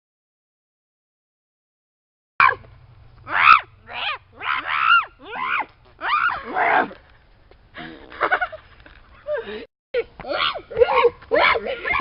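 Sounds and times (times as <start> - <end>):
person squealing: 3.3 - 7.0.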